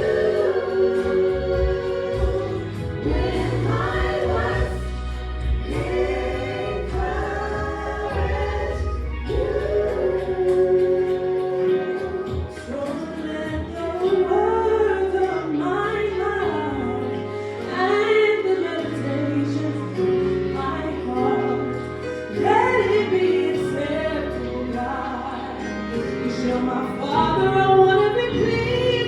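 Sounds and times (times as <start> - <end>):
sustained accompaniment: 0.0 - 12.7
vocal group singing gospel: 0.0 - 29.0.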